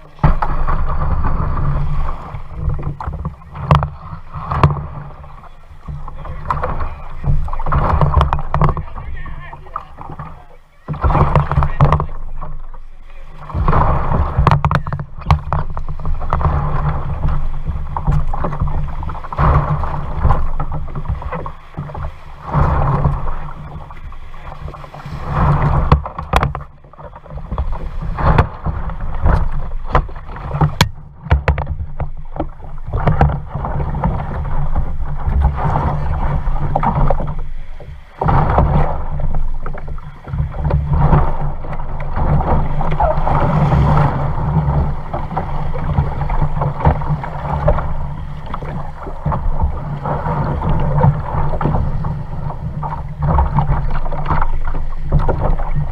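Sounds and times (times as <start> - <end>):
constant low rumble: 0.0 - 55.9
paddle strokes swishing in water: 0.0 - 55.9
sharp knocks: 5.8 - 9.1, 13.5 - 23.4, 25.4 - 34.2.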